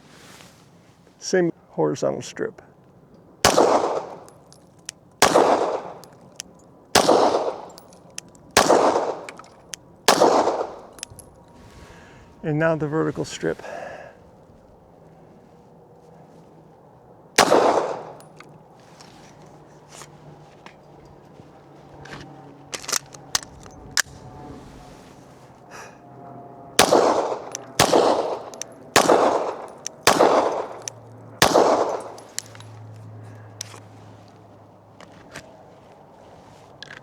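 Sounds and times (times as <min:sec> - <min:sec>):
pistol shots with echo: 0:03.4 - 0:04.5, 0:05.2 - 0:11.3, 0:17.4 - 0:18.4, 0:26.8 - 0:32.6.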